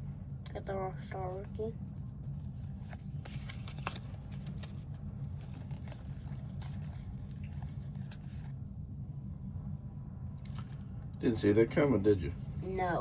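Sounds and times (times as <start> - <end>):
steady low hum: 0.0 - 13.0
trading cards rustling: 2.6 - 8.5.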